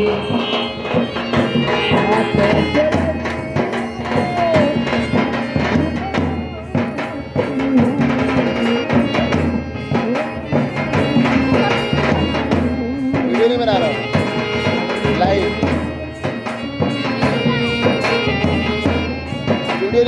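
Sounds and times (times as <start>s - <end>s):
hand drums beating: 0.0s - 20.0s
sustained melodic instrument: 0.0s - 20.0s.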